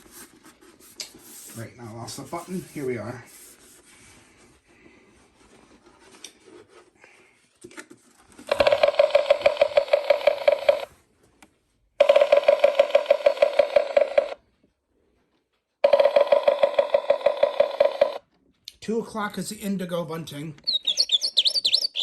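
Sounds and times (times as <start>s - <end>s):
recorded bird call from speaker: 20.6s - 22.0s.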